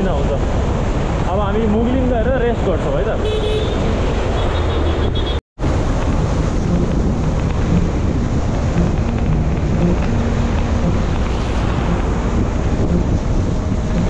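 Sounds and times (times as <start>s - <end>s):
wind buffeting microphone: 5.6s - 14.0s.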